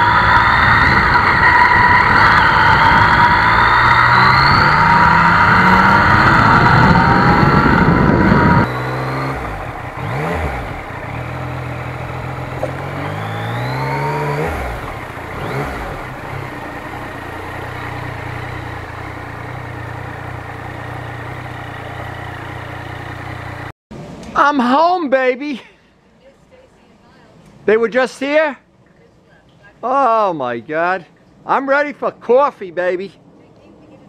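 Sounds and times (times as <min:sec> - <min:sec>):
wind rush: 0:00.0 - 0:09.9
motorcycle engine running: 0:00.0 - 0:23.7.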